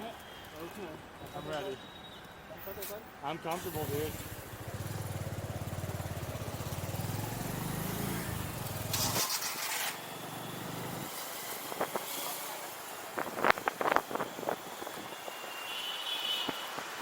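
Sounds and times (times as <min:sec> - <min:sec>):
brief hiss: 0:08.8 - 0:10.0.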